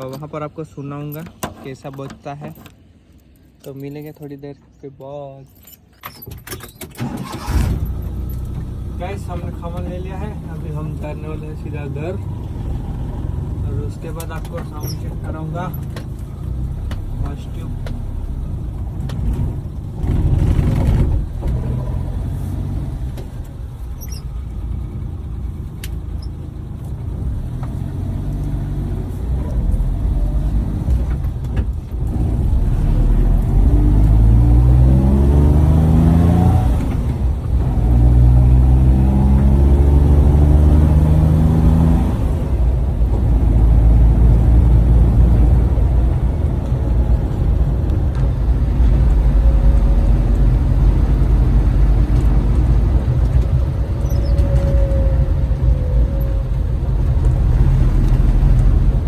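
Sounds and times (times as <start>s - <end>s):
road rumble: 0.0s - 59.0s
van engine running: 7.0s - 59.0s.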